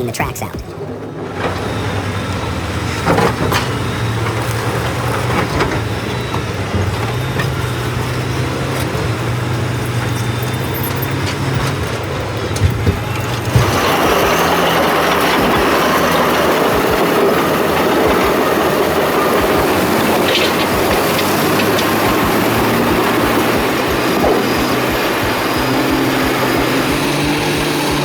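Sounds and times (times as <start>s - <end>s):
heavy vehicle engine running: 0.6s - 28.0s
knocks and clanks: 12.5s - 28.0s.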